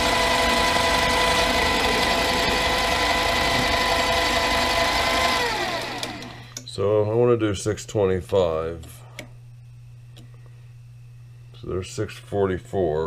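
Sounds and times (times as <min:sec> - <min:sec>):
lathe motor whine: 0:00.0 - 0:06.6
lathe spinning down: 0:00.0 - 0:06.6.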